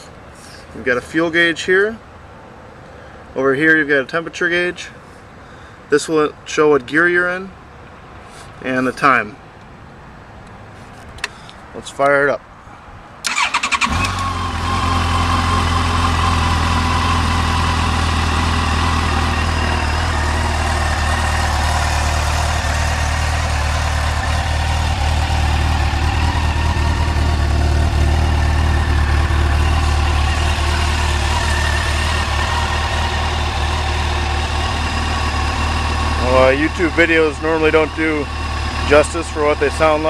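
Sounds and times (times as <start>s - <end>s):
motorcycle engine idling: 13.3s - 40.0s.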